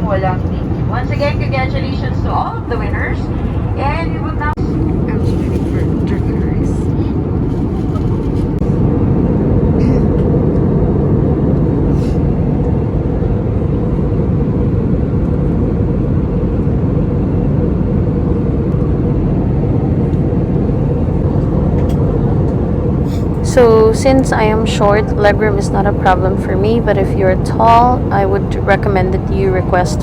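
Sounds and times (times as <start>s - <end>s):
airplane cabin engine drone: 0.0s - 30.0s.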